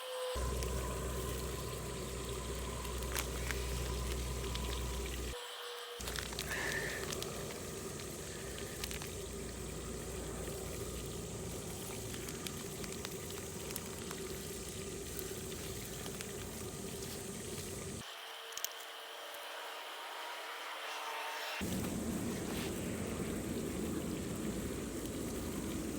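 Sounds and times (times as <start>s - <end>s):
food sizzling and bubbling in a pot: 0.0s - 25.9s.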